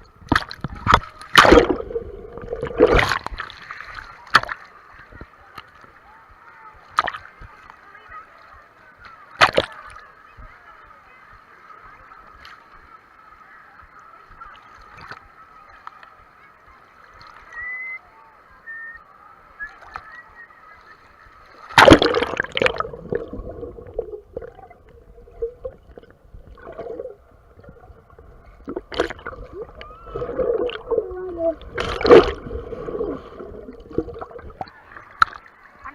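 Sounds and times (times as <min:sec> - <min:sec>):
water gurgling: 0:00.0 - 0:08.3, 0:21.2 - 0:35.9
muffled water splashing: 0:00.0 - 0:35.9.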